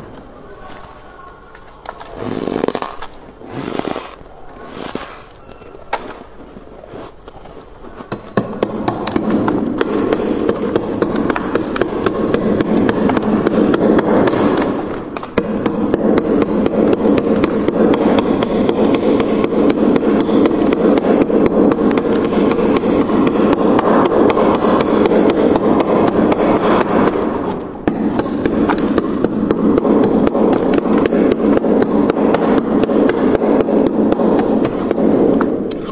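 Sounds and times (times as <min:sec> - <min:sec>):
frost being scraped off freezer: 0:02.1 - 0:05.4.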